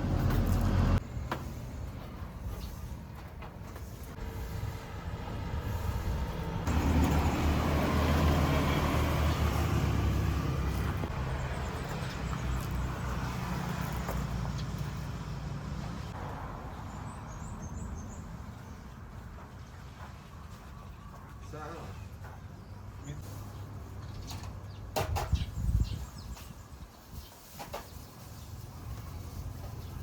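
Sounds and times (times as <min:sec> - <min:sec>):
vehicle engine passing by: 0:00.0 - 0:01.6, 0:04.2 - 0:18.2.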